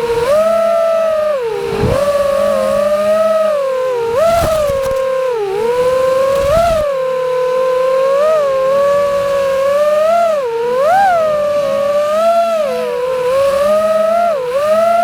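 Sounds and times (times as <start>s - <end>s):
quadcopter motors whining: 0.0s - 15.0s
wind noise rushes: 1.6s - 2.3s, 4.1s - 5.1s, 5.7s - 6.9s.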